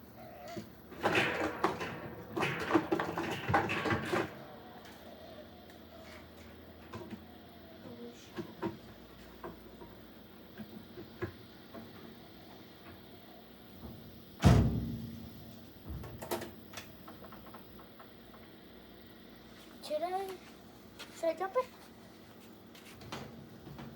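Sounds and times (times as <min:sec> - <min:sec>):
loud ringing thump: 0:14.4 - 0:15.4.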